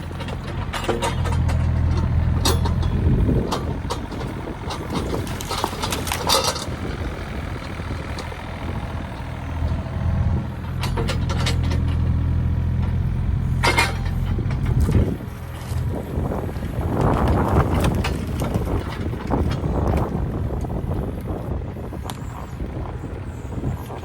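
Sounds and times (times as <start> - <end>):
knocks and clatters: 0.0 - 6.8, 10.6 - 13.0, 13.6 - 15.9, 16.9 - 20.1
engine idling: 0.0 - 24.0.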